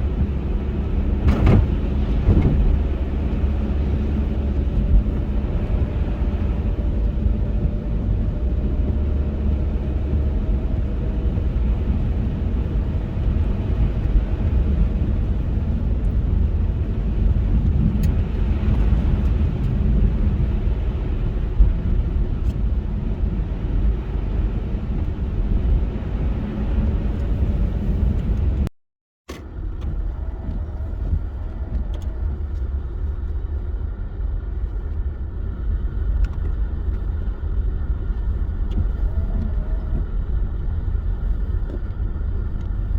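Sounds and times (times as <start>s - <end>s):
car road and engine rumble: 0.0s - 28.7s, 29.3s - 42.9s.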